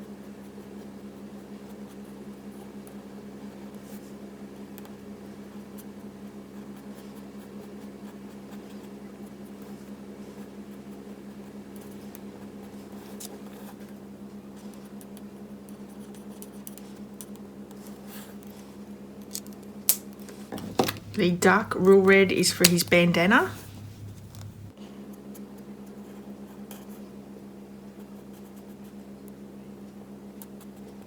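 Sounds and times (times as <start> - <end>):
low hum: 19.2 - 24.8.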